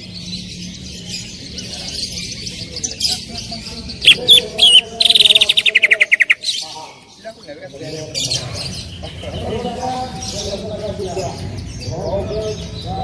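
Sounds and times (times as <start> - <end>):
bird singing and chattering: 0.0 - 13.0
rapid bird trill: 3.9 - 6.8.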